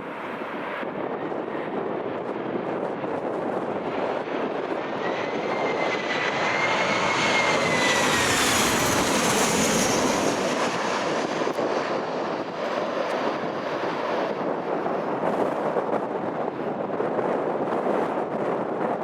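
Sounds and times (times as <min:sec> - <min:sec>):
wind buffeting microphone: 0:00.0 - 0:19.0
aircraft engines passing: 0:00.1 - 0:18.5
high engine whine: 0:02.9 - 0:13.3.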